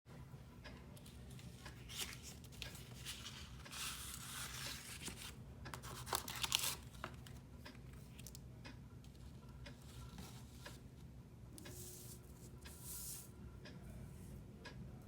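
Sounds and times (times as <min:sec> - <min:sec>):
packaging rustling: 0:01.7 - 0:07.4
packaging tearing and crackling: 0:05.8 - 0:07.3.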